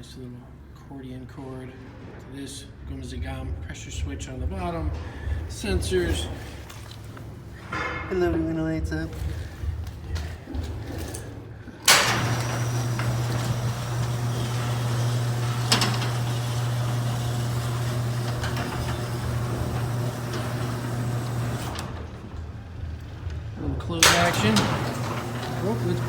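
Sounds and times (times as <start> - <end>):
garage door motor humming: 8.8 - 26.0
garage door opener clunk: 11.8 - 26.0.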